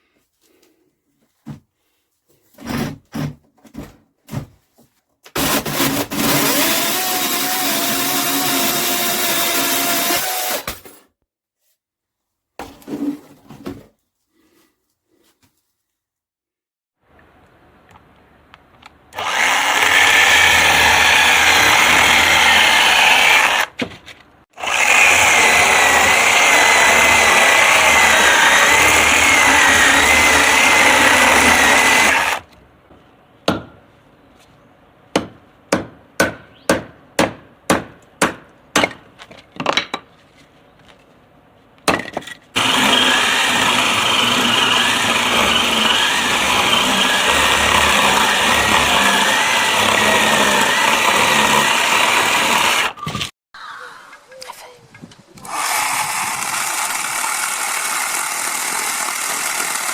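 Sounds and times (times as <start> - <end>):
cordless chainsaw motor whine: 55.4 - 59.9.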